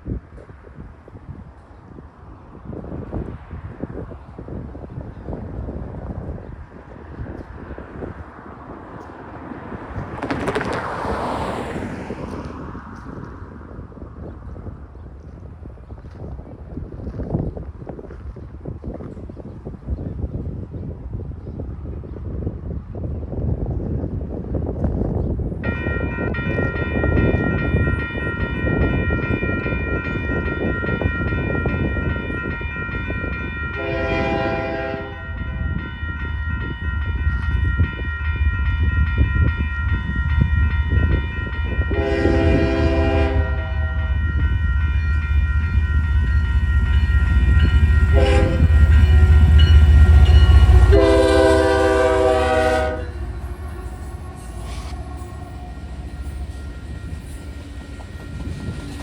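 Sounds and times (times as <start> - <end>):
crossing warning bell ringing: 25.6 - 59.0
train horn blasts: 33.6 - 35.7, 41.7 - 59.0
locomotive low rumble: 36.4 - 59.0.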